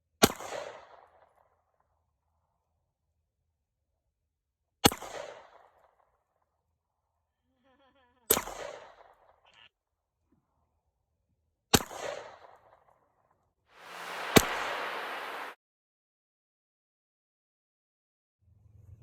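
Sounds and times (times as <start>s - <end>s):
steady hiss: 13.8s - 15.6s.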